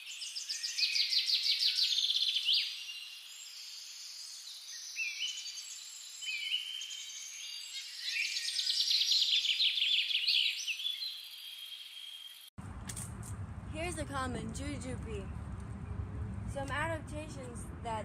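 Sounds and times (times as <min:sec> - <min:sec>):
birds chirping and trilling: 0:00.0 - 0:12.5.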